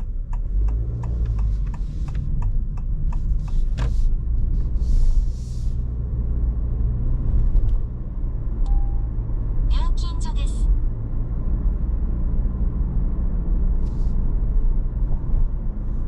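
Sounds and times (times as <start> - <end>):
turn signal ticking: 0.0 - 4.4
low road rumble in car cabin: 0.0 - 16.0.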